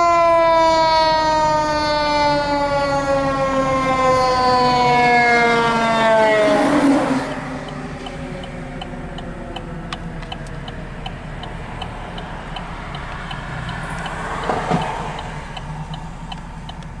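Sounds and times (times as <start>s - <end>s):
diesel engine rumbling: 0.0s - 17.0s
quick regular ticking: 7.7s - 17.0s.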